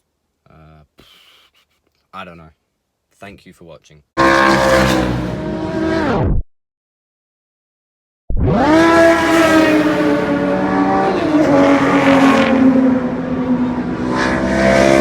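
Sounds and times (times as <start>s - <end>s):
car engine revving hard: 4.2s - 6.3s, 8.4s - 15.0s.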